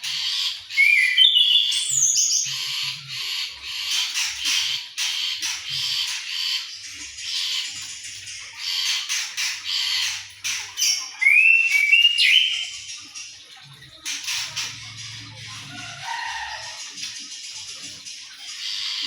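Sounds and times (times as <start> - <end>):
bird whistled notes: 0.7 - 2.5, 10.8 - 12.7
bird harsh chattering: 8.6 - 13.0.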